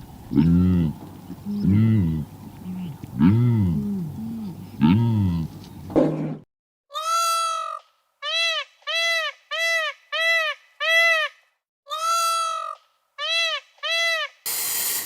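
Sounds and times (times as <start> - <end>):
high-pitched animal calls: 6.9 - 14.4
hissing noise: 14.5 - 15.0.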